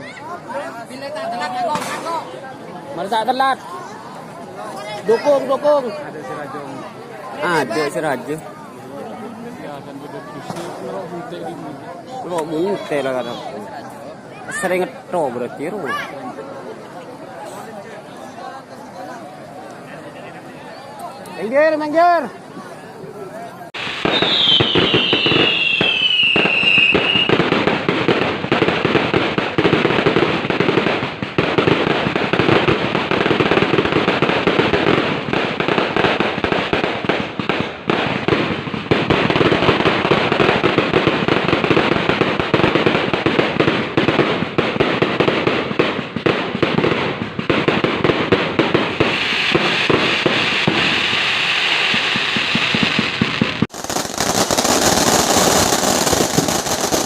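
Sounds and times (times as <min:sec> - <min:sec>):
fireworks crackling bangs: 0:00.0 - 0:16.5, 0:23.6 - 0:57.0
high firework whistle: 0:23.8 - 0:27.5
falling firework whistle: 0:23.8 - 0:27.7.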